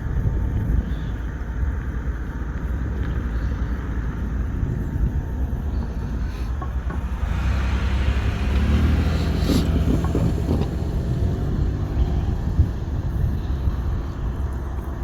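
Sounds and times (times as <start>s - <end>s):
freight train rumble: 0.0s - 15.0s.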